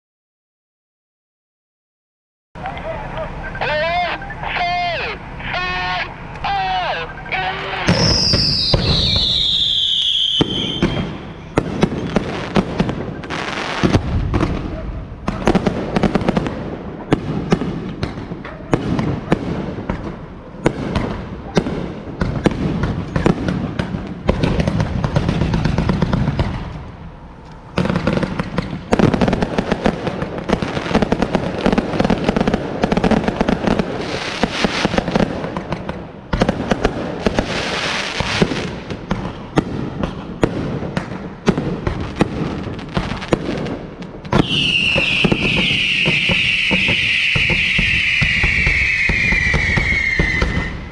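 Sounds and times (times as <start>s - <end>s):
firework falling whistle: 3.6s - 12.6s, 44.3s - 50.9s
fireworks bangs and crackling: 3.6s - 50.9s.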